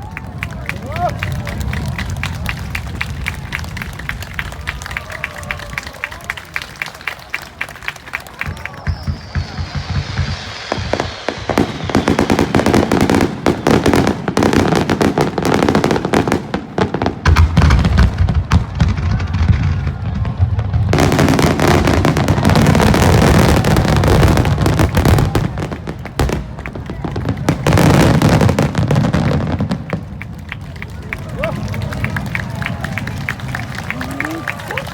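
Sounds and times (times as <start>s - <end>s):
fireworks bangs and crackles: 0.0s - 34.9s
deep fireworks booms: 7.8s - 33.8s.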